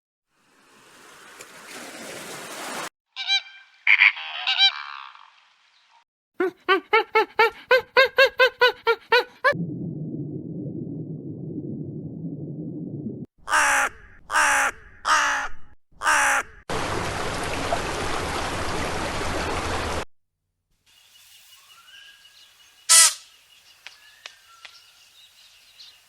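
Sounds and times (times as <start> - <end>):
harsh caw-like bird calls: 3.2 - 5.4
low rumbling noise: 9.6 - 13.3.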